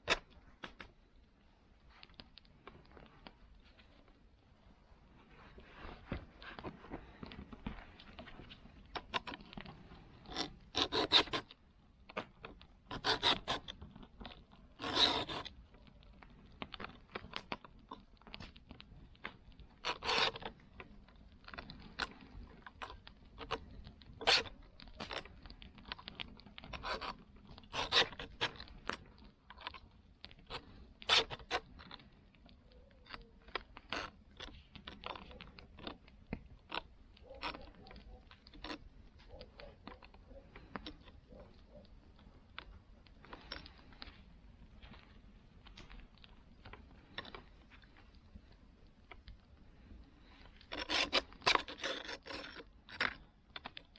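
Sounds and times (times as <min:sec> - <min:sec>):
file scraping saw teeth: 0:10.2 - 0:11.5, 0:12.9 - 0:13.7, 0:14.8 - 0:15.5, 0:19.8 - 0:20.4, 0:24.2 - 0:25.2, 0:27.7 - 0:29.0, 0:30.5 - 0:31.6, 0:50.7 - 0:52.6.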